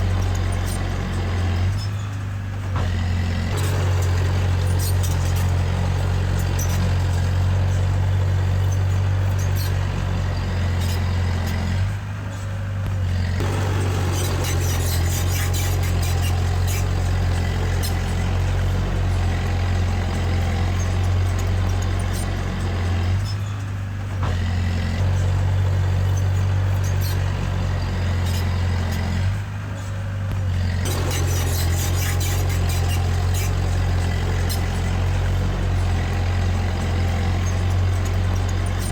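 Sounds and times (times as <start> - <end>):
bulldozer diesel engine: 0.0 - 38.9
metallic clatter of tracks: 13.4 - 17.0, 30.8 - 33.7.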